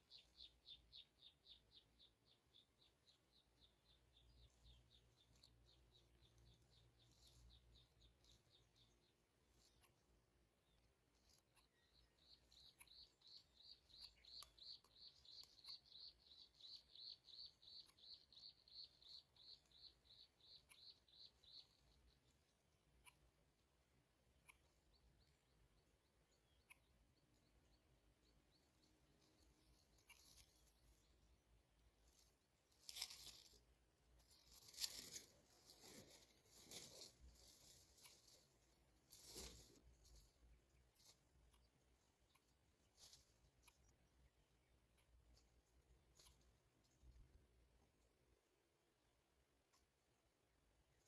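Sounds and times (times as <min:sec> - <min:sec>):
faint high-pitched chirping: 0:00.0 - 0:51.0
birds tearing at prey rustles: 0:32.7 - 0:33.6, 0:34.2 - 0:40.2.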